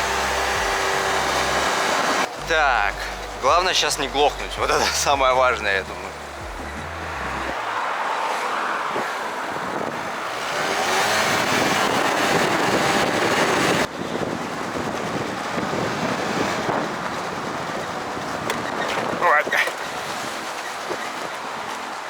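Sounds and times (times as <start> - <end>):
moped engine running: 0.0 - 7.6
wind buffeting microphone: 8.6 - 22.0.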